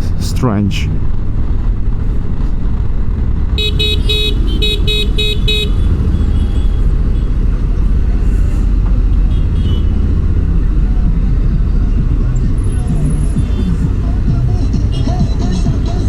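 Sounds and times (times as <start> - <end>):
engine and road noise: 0.0 - 16.0
vehicle horn short toots: 3.6 - 7.4, 9.3 - 9.9.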